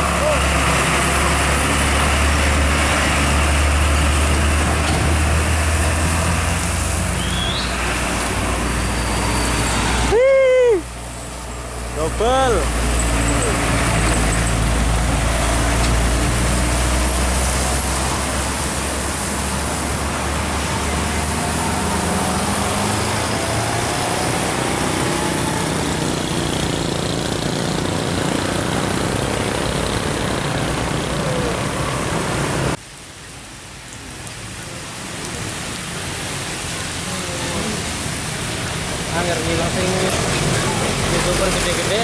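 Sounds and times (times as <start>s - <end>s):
heavy diesel trucks engine drone: 0.0s - 32.8s.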